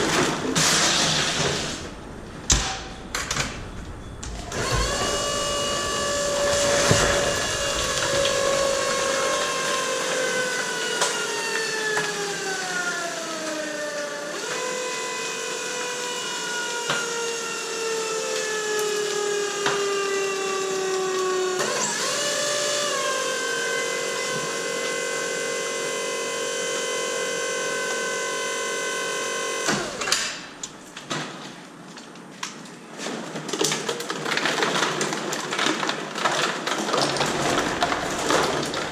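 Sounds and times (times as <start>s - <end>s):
electric motor whining: 4.2s - 13.6s.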